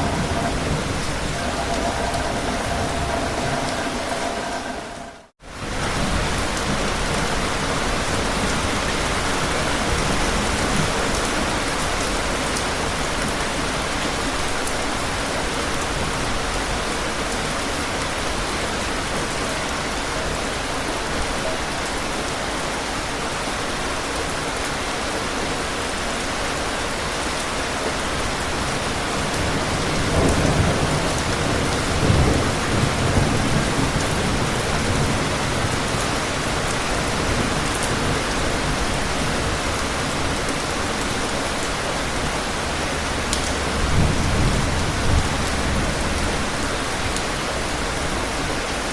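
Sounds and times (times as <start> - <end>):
thunder rumbling: 0.0 - 12.3, 28.7 - 48.5
heavy rain falling: 0.0 - 48.9.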